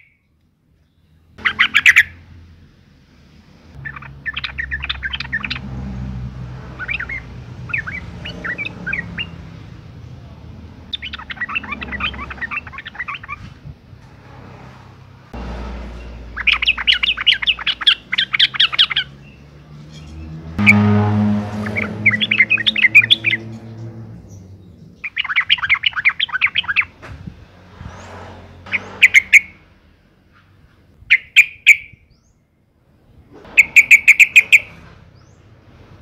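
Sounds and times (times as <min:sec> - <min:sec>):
bird chattering chirps: 0:01.4 - 0:02.2, 0:03.8 - 0:05.7, 0:10.9 - 0:13.4, 0:16.3 - 0:19.4, 0:24.3 - 0:26.9, 0:33.6 - 0:34.8
low steady hum: 0:20.6 - 0:25.1.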